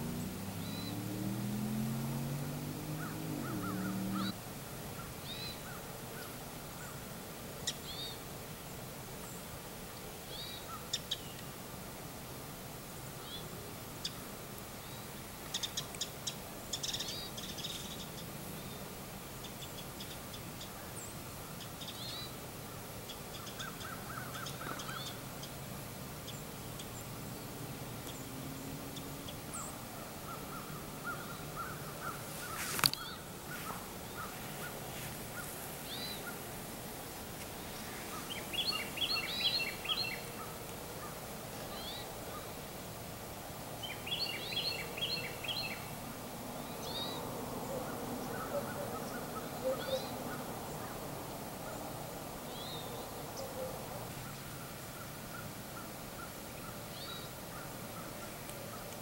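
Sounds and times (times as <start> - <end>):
birds chirping: 0.0 - 4.4, 26.2 - 42.7, 43.8 - 59.0.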